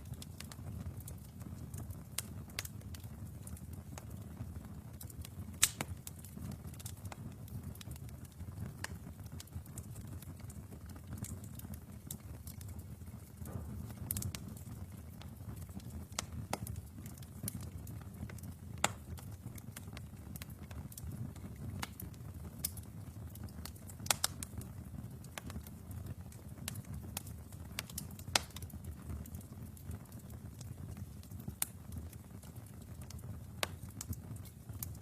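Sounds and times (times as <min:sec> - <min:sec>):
fire crackling and popping: 0:00.0 - 0:35.0
fire rumbling: 0:00.0 - 0:35.0.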